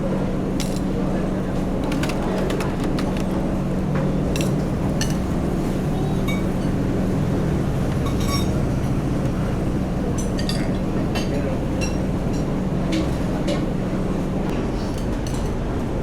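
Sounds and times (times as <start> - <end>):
low hum of eatery background: 0.0 - 16.0
dishes and glasses clinking: 7.9 - 8.7.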